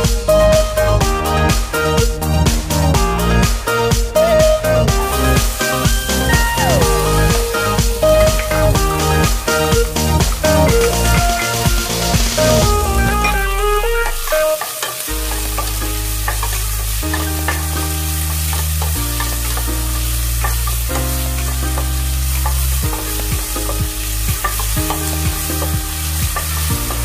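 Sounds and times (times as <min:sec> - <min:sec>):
background music: 0:00.0 - 0:27.0
onions sizzling in a pot: 0:14.3 - 0:27.0.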